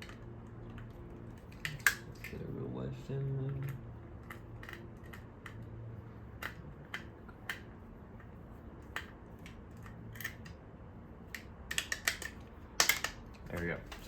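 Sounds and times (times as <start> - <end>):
screwdriver clicks and taps: 11.3 - 14.0.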